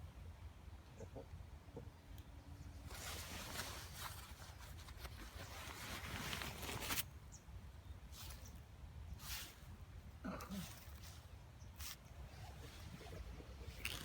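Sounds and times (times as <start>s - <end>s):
rustling and crackling handling noise: 2.8s - 7.2s, 8.1s - 8.6s, 9.2s - 14.0s.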